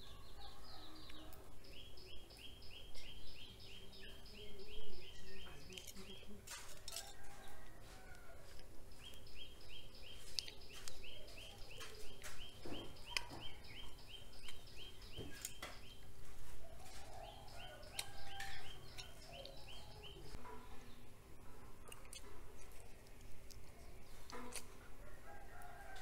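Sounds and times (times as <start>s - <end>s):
bird chirping: 0.0s - 7.4s, 8.9s - 21.1s.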